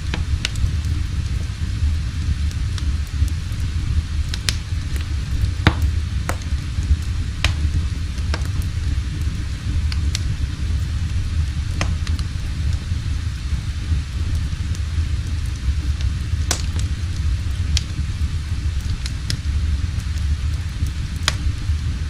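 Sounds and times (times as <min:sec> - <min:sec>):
fire crackles: 0:00.0 - 0:22.0
fire rumbling: 0:00.0 - 0:22.0.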